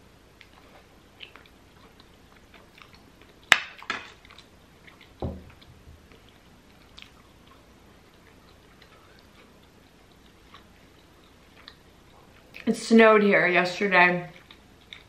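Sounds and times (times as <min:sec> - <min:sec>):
person chewing food: 0:00.3 - 0:12.6, 0:14.3 - 0:15.0
dull low thump: 0:05.2 - 0:06.0.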